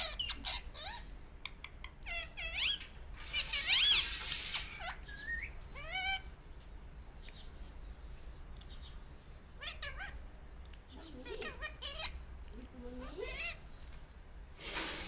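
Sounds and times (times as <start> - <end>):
parrot chirps and squawks: 0.0 - 6.3, 9.6 - 10.2, 11.0 - 12.3, 13.0 - 13.7.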